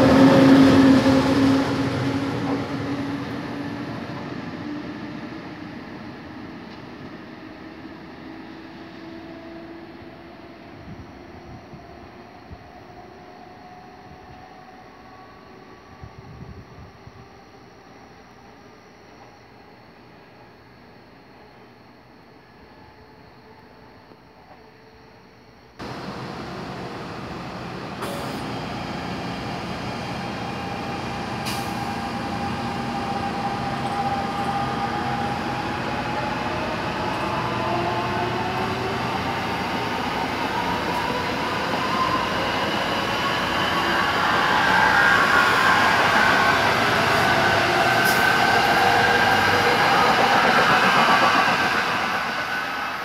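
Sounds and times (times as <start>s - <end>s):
train wheels rumbling on rails: 0.0s - 7.2s, 25.8s - 53.0s
electric train whine: 0.0s - 53.0s.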